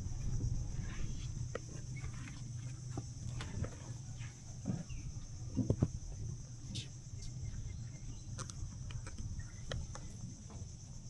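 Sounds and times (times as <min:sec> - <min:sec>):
low rumble: 0:00.0 - 0:10.4
insects buzzing: 0:00.0 - 0:11.0.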